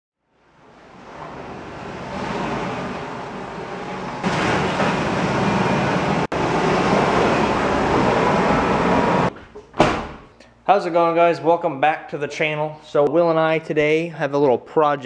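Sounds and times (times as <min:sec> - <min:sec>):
vehicle engine and driving noise: 0:00.4 - 0:09.3.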